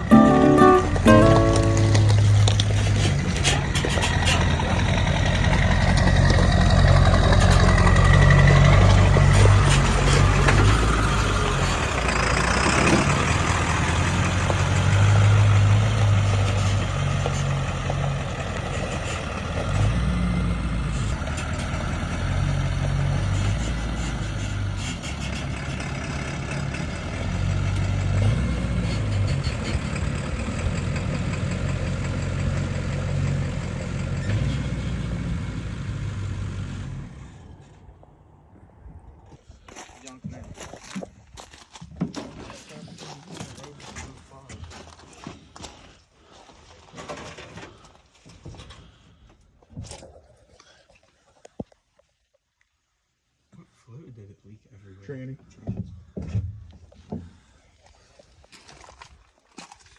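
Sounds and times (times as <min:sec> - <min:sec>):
truck engine rumbling: 0:00.0 - 0:39.5.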